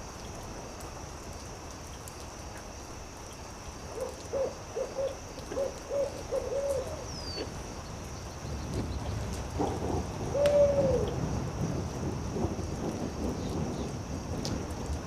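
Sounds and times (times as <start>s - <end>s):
owl hooting: 3.9s - 7.5s, 10.3s - 11.1s.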